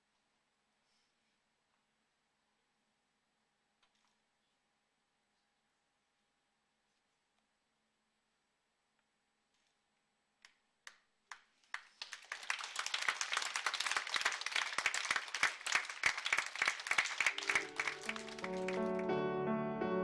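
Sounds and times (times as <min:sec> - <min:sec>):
audience applause: 0:11.7 - 0:19.1.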